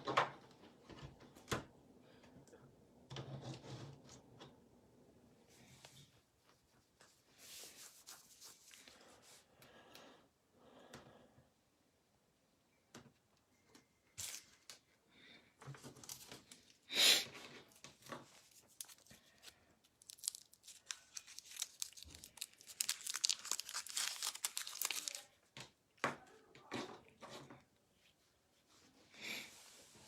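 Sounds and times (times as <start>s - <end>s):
packaging tearing and crinkling: 18.7s - 25.4s.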